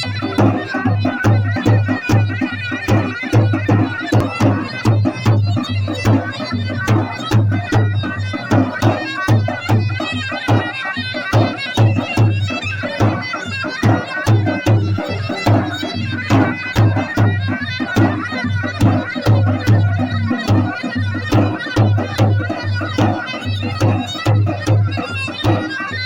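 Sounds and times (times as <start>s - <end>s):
reedy wind instrument melody: 0.0s - 26.0s
deep drum beats: 18.8s - 25.6s.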